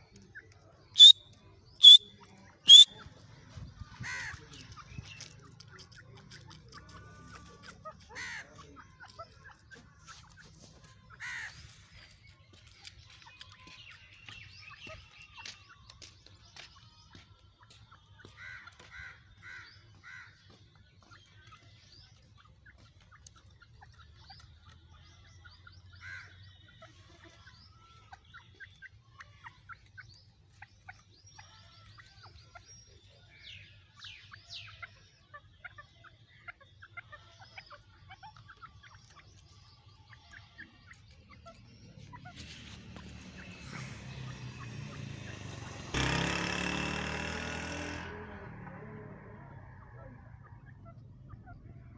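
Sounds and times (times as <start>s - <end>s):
bird calling and chirping: 0.0s - 3.3s, 4.4s - 46.2s.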